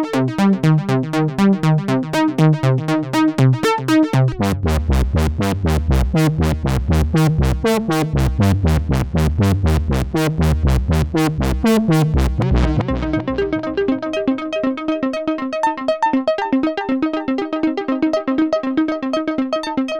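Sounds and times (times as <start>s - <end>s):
synthesizer sequenced line: 0.5s - 15.1s.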